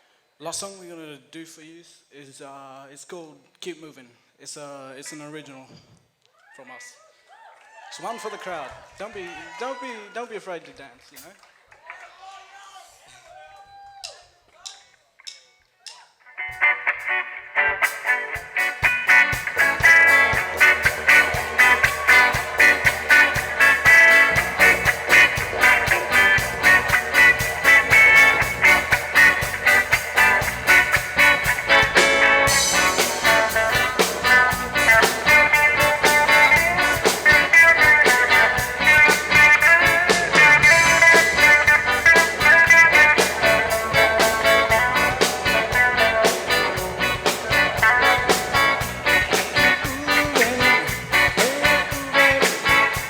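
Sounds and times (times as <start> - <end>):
reggae band playing: 15.2 - 53.0
cymbal crash wash: 19.0 - 37.3.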